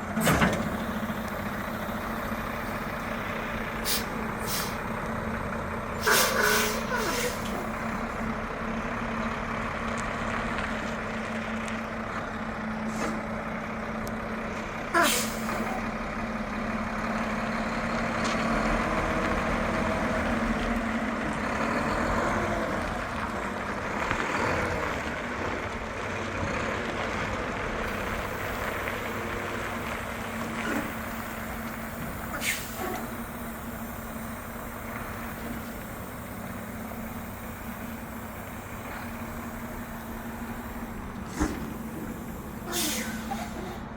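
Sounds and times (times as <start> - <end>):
truck engine running: 0.0 - 43.9
air brake hisses: 3.8 - 4.9, 6.0 - 7.8, 15.0 - 15.8, 30.5 - 34.4, 39.0 - 43.9.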